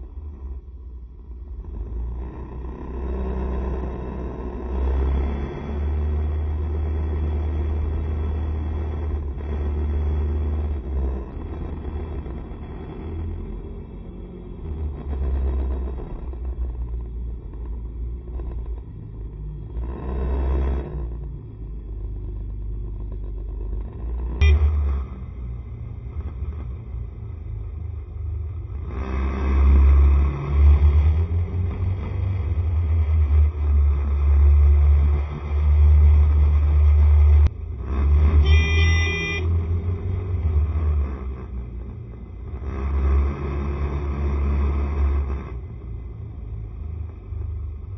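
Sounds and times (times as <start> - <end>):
road noise: 0.0 - 47.9
wind and engine rumble: 0.0 - 47.9
vehicle horn beeping: 24.4 - 24.9, 38.4 - 39.6.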